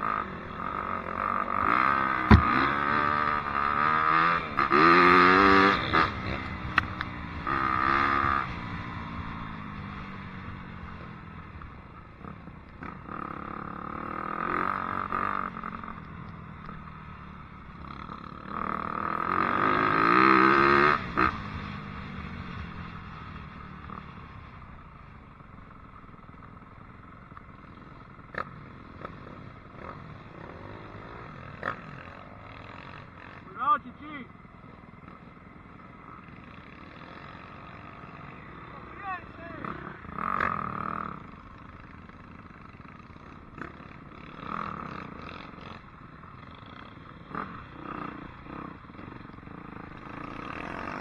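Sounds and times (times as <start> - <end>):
dirt bike engine revving: 1.8 - 6.2.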